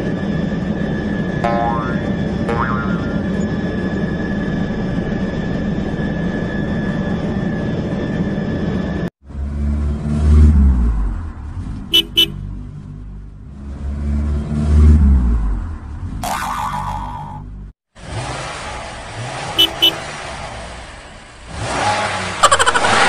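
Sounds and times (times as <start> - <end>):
car engine rumbling: 9.2 - 16.2
car horn toots: 11.9 - 12.5, 19.6 - 20.1.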